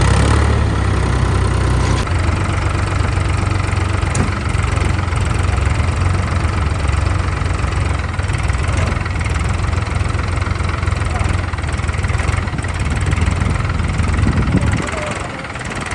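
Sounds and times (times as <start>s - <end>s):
tractor diesel engine running: 0.0s - 15.9s.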